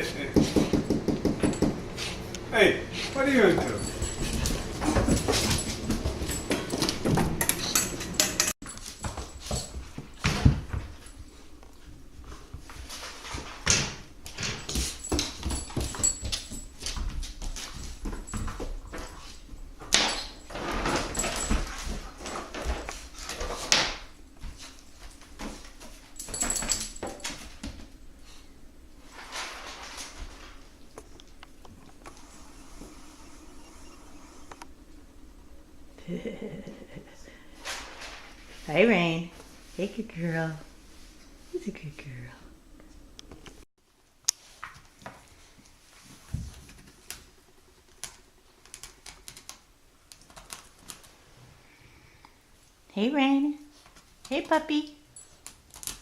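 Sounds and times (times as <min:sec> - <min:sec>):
scuffling and knocks: 0:03.0 - 0:28.0
puppy claws clicking on floor: 0:47.9 - 0:51.1, 0:55.2 - 0:56.0.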